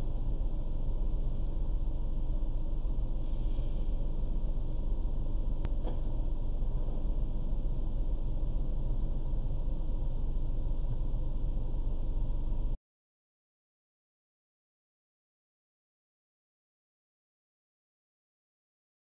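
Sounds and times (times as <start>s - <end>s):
vehicle and road rumble: 0.0s - 12.8s.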